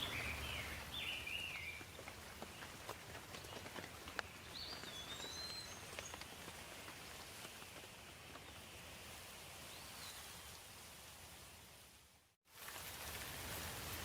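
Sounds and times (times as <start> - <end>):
steady rain falling: 10.5 - 14.0.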